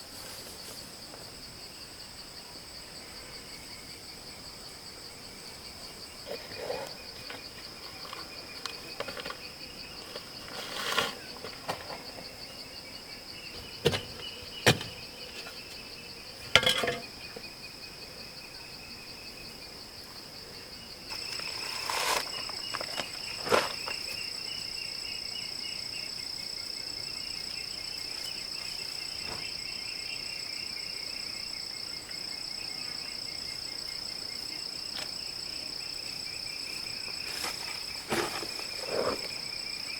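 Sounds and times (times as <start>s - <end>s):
insects chirring: 0.0s - 39.9s
sharp knocks: 13.8s - 15.0s.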